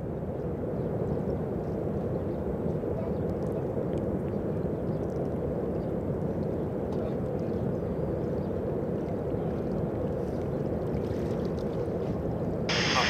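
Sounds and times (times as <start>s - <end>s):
distant freight train rumbling: 12.7s - 13.0s.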